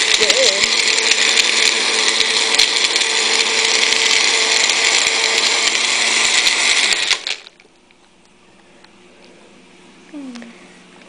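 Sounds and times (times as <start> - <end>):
blender motor winding down: 0.0 - 7.6
blender running loudly: 0.0 - 7.6.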